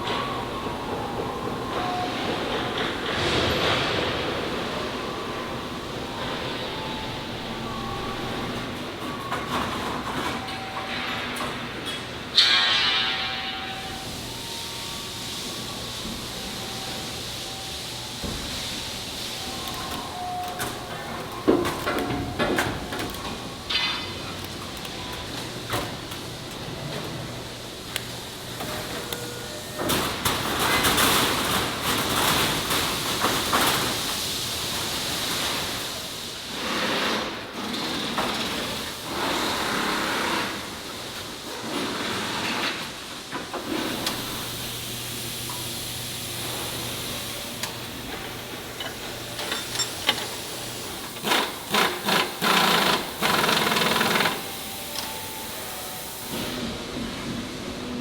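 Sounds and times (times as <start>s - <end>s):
sharp metal clanks: 12.4s - 13.9s.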